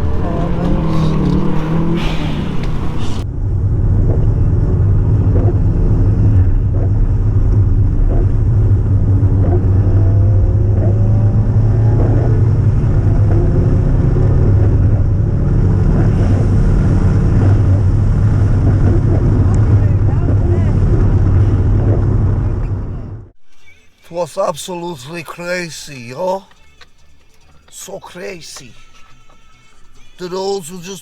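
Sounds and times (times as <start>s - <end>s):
car engine cruising: 0.0s - 23.4s
road noise: 0.0s - 23.4s, 24.2s - 31.0s.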